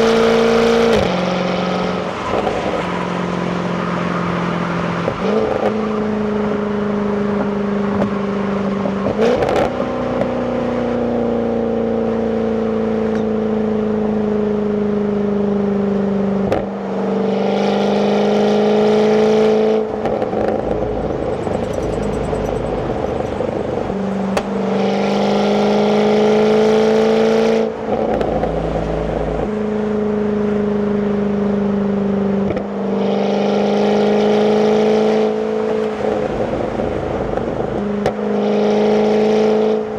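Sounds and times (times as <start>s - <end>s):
gear changes: 20.3s - 26.4s
car engine from inside cabin: 20.3s - 27.0s.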